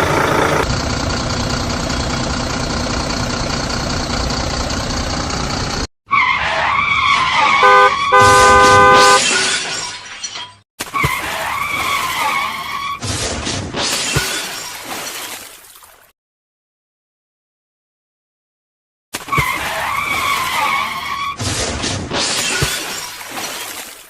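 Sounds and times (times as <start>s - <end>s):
tyres screeching: 6.1s - 9.3s, 19.3s - 21.4s
loud multi-tone horn blast: 7.4s - 9.2s.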